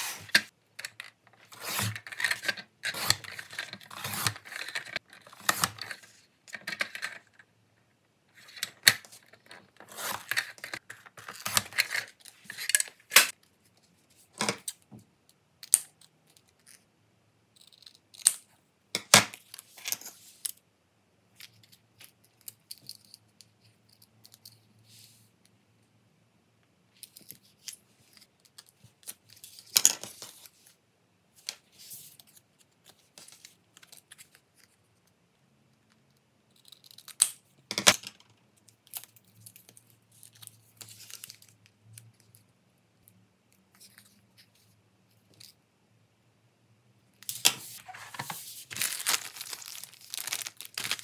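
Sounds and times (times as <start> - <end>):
paper rustling: 47.3 - 51.0.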